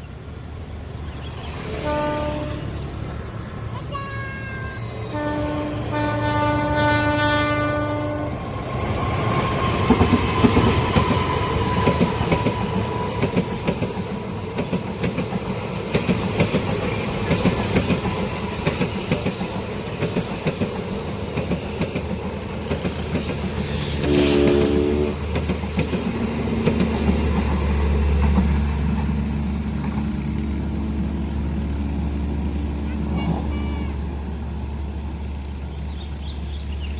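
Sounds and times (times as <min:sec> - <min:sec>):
locomotive horn: 0:01.7 - 0:02.9, 0:04.0 - 0:08.4, 0:23.9 - 0:25.3, 0:32.8 - 0:34.3
train wheels clattering over rails: 0:08.5 - 0:32.5.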